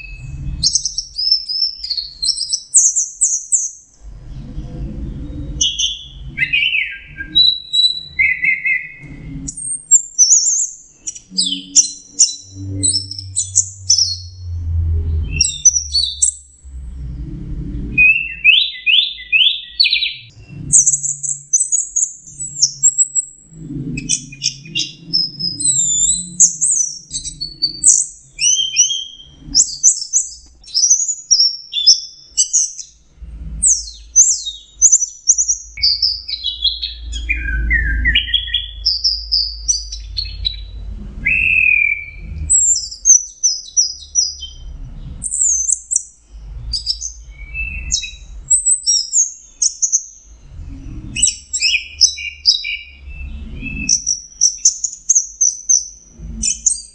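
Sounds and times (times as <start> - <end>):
thrush singing whistled phrases: 5.6 - 16.5, 18.0 - 23.4, 24.0 - 32.9, 33.6 - 44.7, 46.7 - 49.1.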